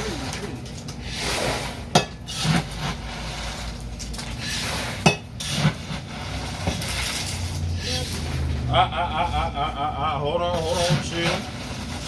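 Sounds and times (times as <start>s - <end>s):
handling and scraping: 10.4s - 12.0s.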